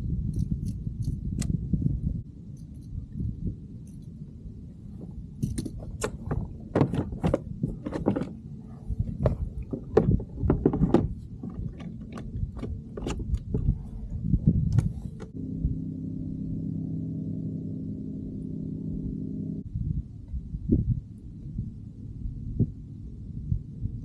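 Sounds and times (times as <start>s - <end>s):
low steady rumble: 0.0s - 24.0s
irregular knocks and clatters: 5.0s - 8.4s, 9.0s - 13.8s.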